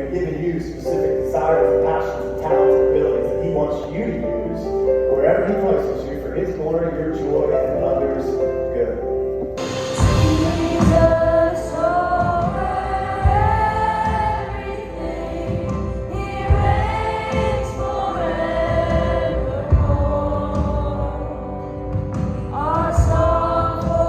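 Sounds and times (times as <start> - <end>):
group singing worship song: 9.6 - 24.0.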